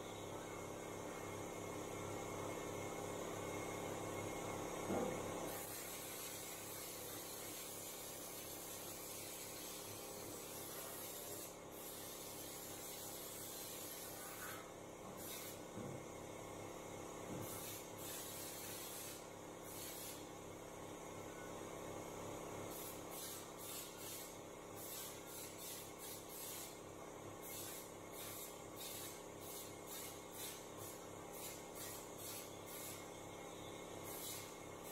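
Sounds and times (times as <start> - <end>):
spray gun hissing: 22.7 - 26.8, 27.4 - 33.0, 34.1 - 34.5.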